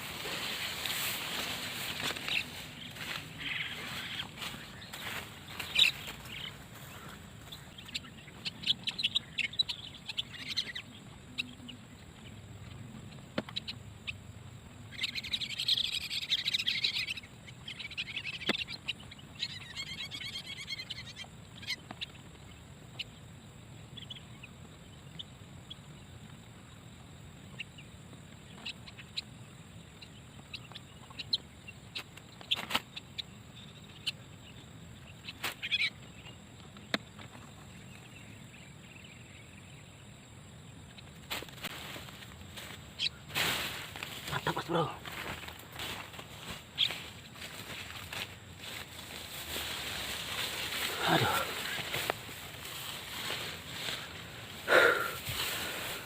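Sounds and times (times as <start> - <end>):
starling chirping and chattering: 0.0 - 11.8, 14.9 - 22.2, 42.6 - 56.0.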